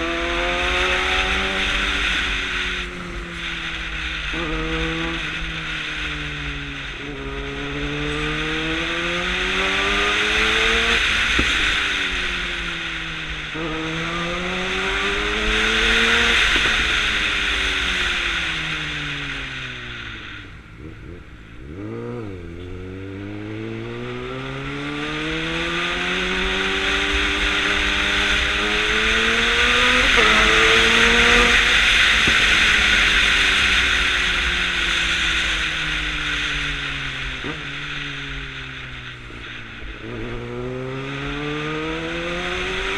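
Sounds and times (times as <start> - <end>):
motorcycle engine revving and shifting: 0.0 - 42.9
rushing wind noise: 23.5 - 42.9.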